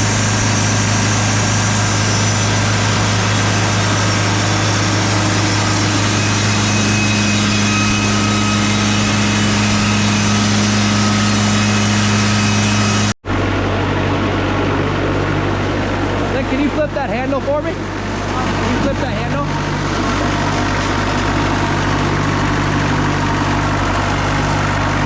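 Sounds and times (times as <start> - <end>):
band sawmill engine humming: 0.0 - 25.0.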